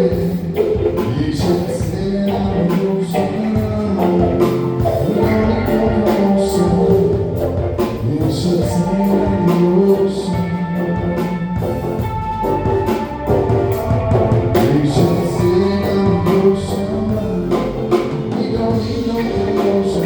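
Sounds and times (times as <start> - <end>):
live band with singing: 0.0 - 20.0
drum hits: 10.4 - 20.0.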